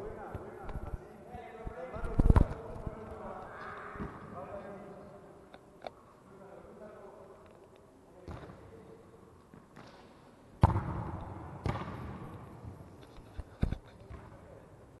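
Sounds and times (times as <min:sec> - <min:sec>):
football kicked and bouncing: 0:10.6 - 0:12.2.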